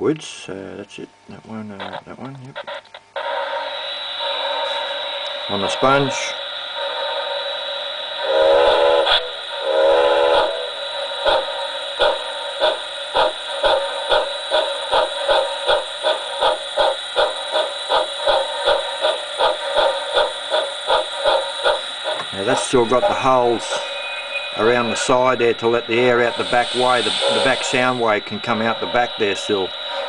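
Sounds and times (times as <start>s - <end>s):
steam hiss: 2.6s - 30.0s
steam locomotive whistle: 3.2s - 12.3s, 21.6s - 30.0s
locomotive chuffing: 3.2s - 30.0s.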